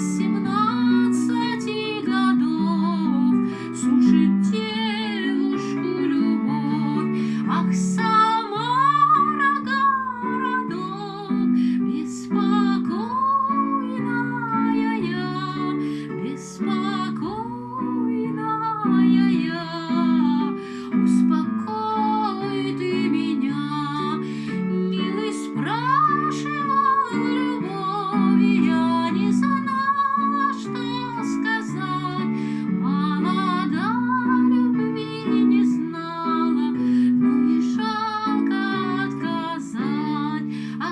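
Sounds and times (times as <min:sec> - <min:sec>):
woman singing folk song: 0:00.0 - 0:40.9.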